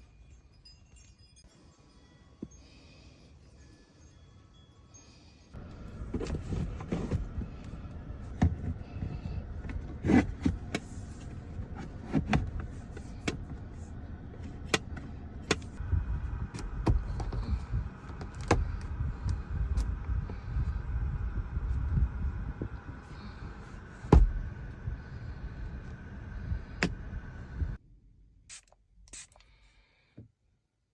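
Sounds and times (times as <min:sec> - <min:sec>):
low rumbling noise: 0:05.6 - 0:28.4.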